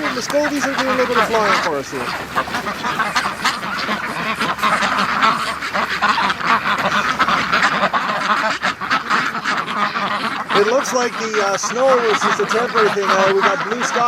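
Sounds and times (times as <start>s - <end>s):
flock of ducks quacking: 0.0s - 14.0s.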